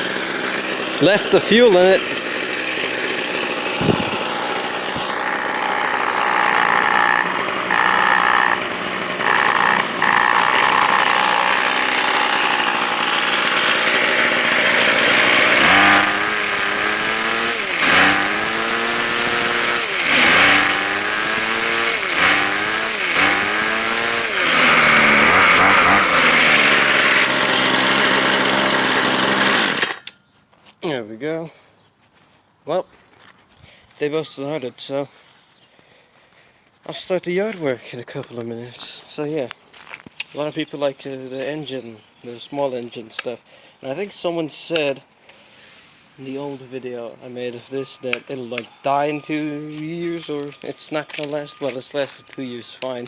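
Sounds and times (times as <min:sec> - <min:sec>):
string trimmer engine revving: 0:00.0 - 0:30.1.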